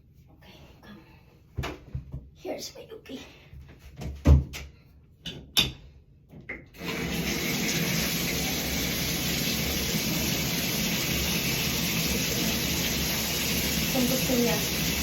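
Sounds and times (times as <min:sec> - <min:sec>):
water running from a tap: 0:06.8 - 0:15.0.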